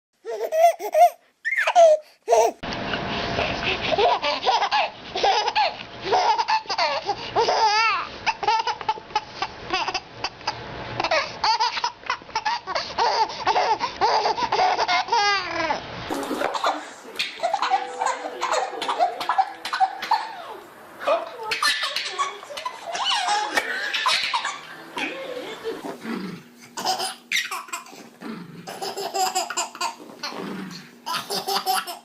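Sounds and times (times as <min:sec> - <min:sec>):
children laughing and squealing: 0:21.4 - 0:25.9.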